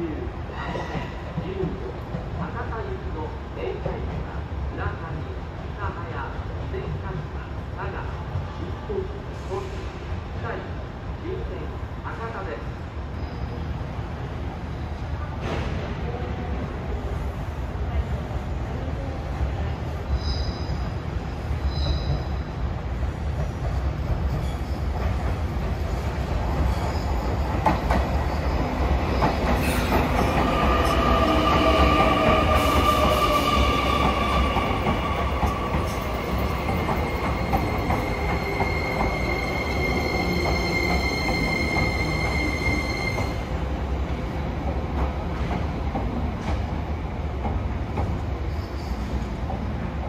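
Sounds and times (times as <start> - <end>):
high whining brake squeal: 20.2 - 20.9, 21.7 - 22.4, 48.5 - 49.1
train wheels rumbling: 21.6 - 49.6.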